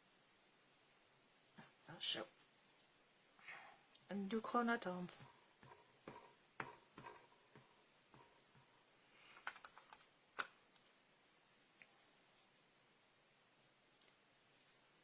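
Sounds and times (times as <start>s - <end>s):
rubber stamp tapping: 5.2s - 8.7s.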